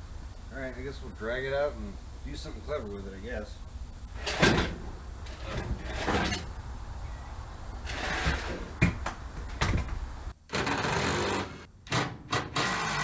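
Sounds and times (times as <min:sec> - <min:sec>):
metal knocks and clunks: 0:04.2 - 0:06.5, 0:08.1 - 0:10.0
metal scraping: 0:04.2 - 0:06.5, 0:07.8 - 0:08.7.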